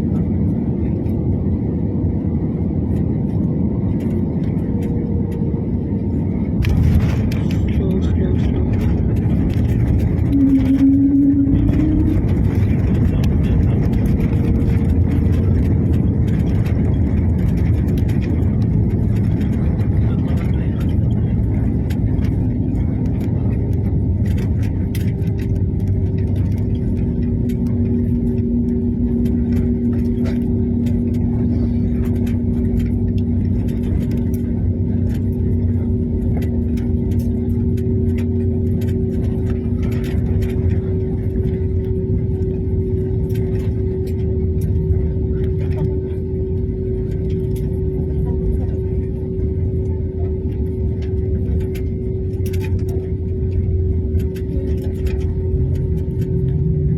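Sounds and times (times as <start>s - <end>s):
airliner engines rumbling: 0.0s - 56.9s
engine whine: 0.0s - 56.9s
two-note hum: 10.2s - 13.2s.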